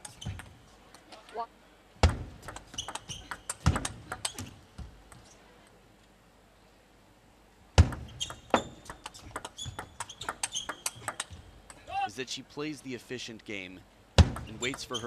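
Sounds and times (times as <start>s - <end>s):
shoes squeaking on floor: 0.0s - 0.5s, 2.7s - 4.6s, 8.1s - 11.1s, 14.7s - 15.0s
table tennis ball clicking: 7.8s - 11.8s.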